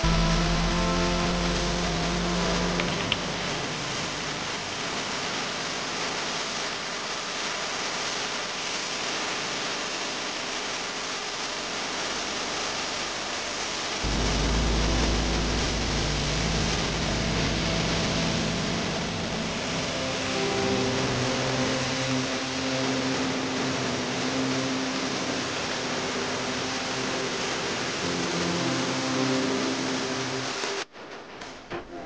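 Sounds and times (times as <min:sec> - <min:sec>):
low rumble: 0:00.0 - 0:05.0, 0:14.0 - 0:21.8.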